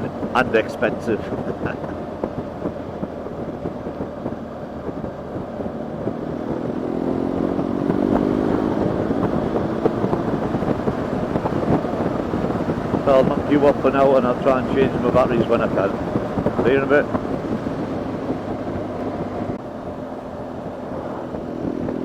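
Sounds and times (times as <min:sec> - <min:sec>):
motorcycle engine accelerating: 0:00.0 - 0:22.0
wind rush on microphone: 0:00.0 - 0:22.0.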